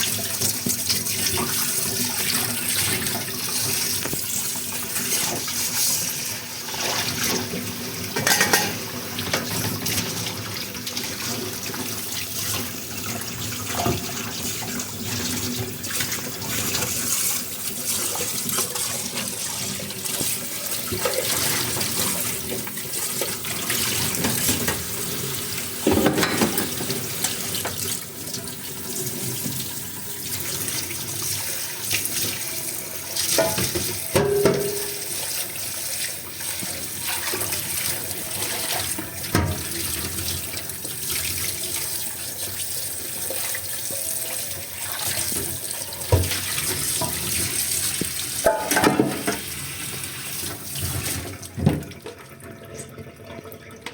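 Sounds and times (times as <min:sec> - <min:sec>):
tap water running into sink: 0:00.0 - 0:53.9
dishes clinking: 0:08.2 - 0:08.8, 0:25.8 - 0:27.4, 0:33.4 - 0:35.1, 0:48.4 - 0:49.4.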